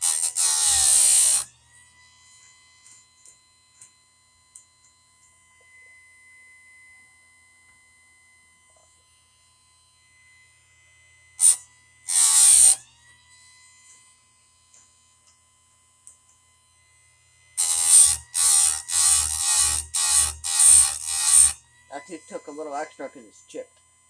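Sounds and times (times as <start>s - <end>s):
grinding wheel grinding metal: 0.0s - 1.5s, 11.4s - 12.8s, 17.6s - 21.6s
grinder motor whining: 0.0s - 2.0s, 11.4s - 13.0s, 17.6s - 22.6s.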